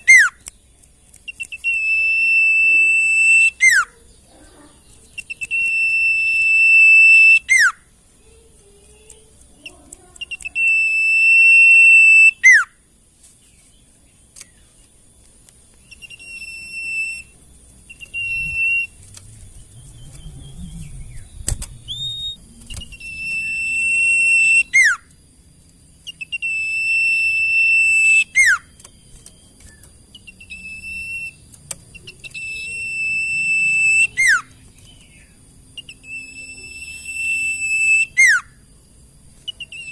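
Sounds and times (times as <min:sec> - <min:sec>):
bush warbler singing: 0:00.0 - 0:39.9.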